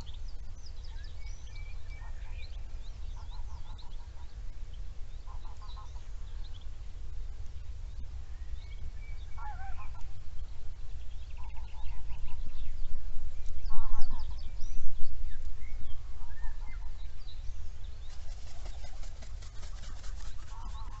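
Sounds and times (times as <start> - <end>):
birds chirping: 13.7 - 21.0
fast rattling bird call: 18.1 - 21.0.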